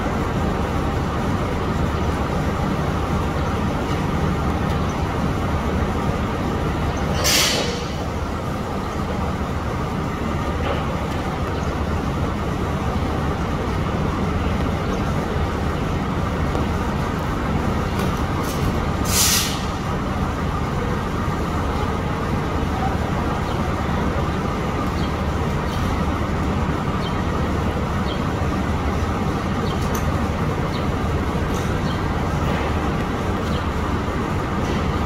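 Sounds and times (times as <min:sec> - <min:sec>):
diesel train idling: 0:00.0 - 0:35.0
sharp air release hisses: 0:07.1 - 0:08.0, 0:19.0 - 0:19.8.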